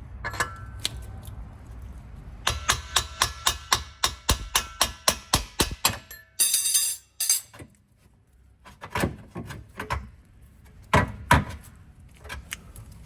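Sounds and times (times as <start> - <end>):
metal clatter of car parts and tools: 0.2 - 1.0, 4.6 - 7.8.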